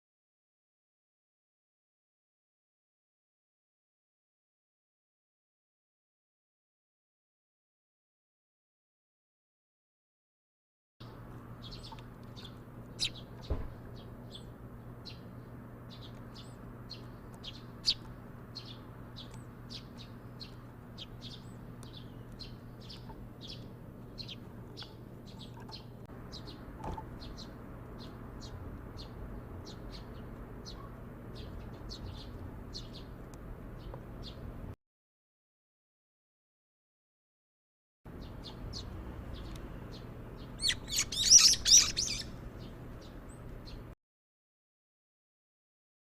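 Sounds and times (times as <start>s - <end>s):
sparrows chirping: 11.1s - 34.7s, 38.1s - 44.0s.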